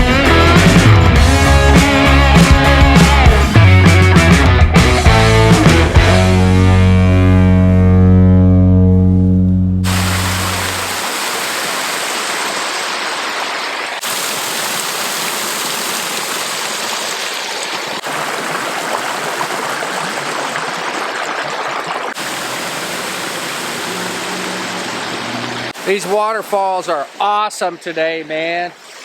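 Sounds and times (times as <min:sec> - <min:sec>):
music track: 0:00.0 - 0:10.8
waterfall rushing: 0:09.8 - 0:27.9.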